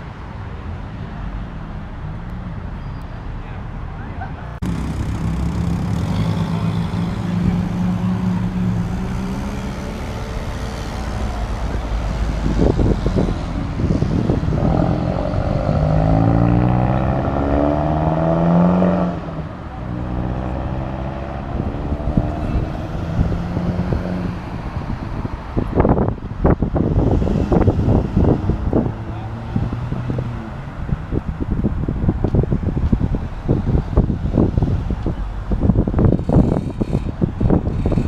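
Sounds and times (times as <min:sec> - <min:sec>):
car engines running: 0:00.0 - 0:38.0
car accelerating hard: 0:04.6 - 0:31.2.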